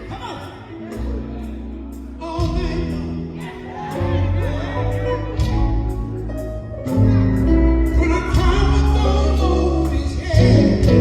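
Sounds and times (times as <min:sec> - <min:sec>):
band with heavy bass: 0:00.0 - 0:11.0
voices singing gospel: 0:08.0 - 0:11.0.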